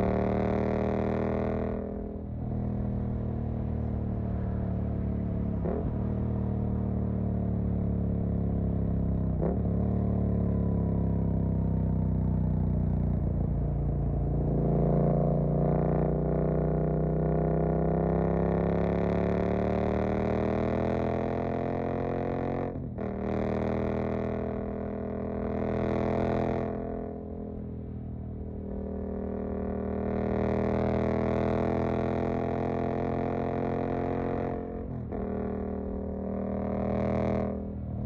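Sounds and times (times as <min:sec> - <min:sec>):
motorcycle engine revving: 0:28.4 - 0:38.0.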